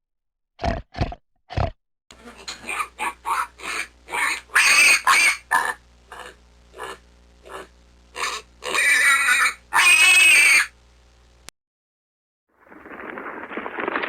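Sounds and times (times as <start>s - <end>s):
pig grunting: 0.6s - 10.2s
pig squealing: 2.2s - 10.8s.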